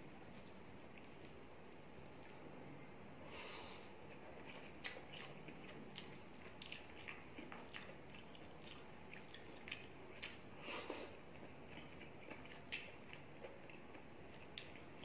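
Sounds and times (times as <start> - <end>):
wet chewing: 4.1 - 10.4.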